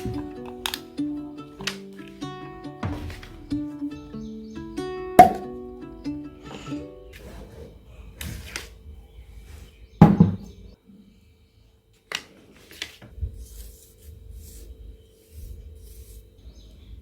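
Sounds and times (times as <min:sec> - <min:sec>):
kitchen utensils knocking: 0:10.0 - 0:10.5.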